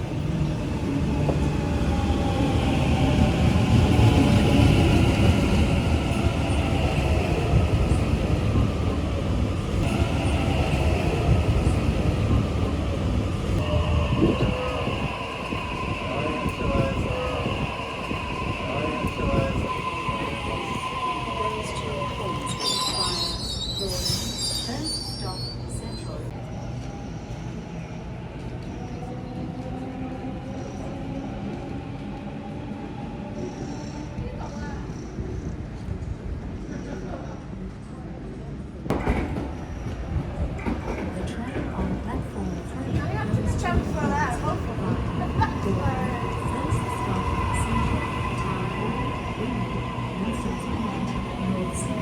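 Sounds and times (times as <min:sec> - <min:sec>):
train high whine: 0:00.0 - 0:36.0, 0:42.4 - 0:52.0
train wheels squealing: 0:13.6 - 0:27.9, 0:33.3 - 0:35.6
train wheels rumbling on track: 0:28.1 - 0:52.0.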